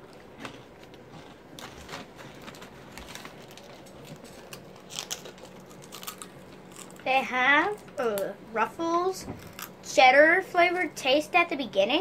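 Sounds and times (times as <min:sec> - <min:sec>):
child chewing crunchy snack: 0:00.0 - 0:08.2, 0:09.4 - 0:09.8.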